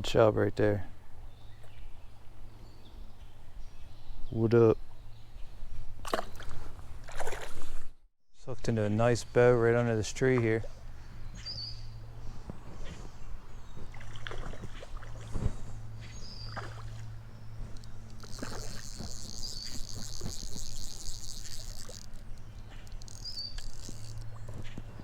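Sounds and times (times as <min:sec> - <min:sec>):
high pulsing buzz: 0:10.7 - 0:25.0.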